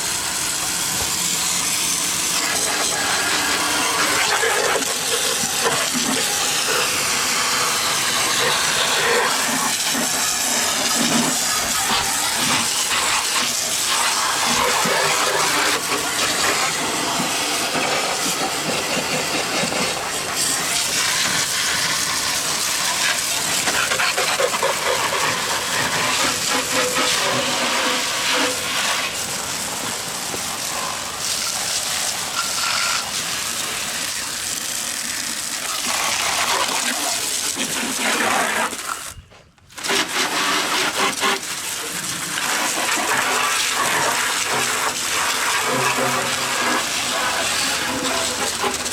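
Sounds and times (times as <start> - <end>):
hose nozzle spraying water: 0.0 - 48.9.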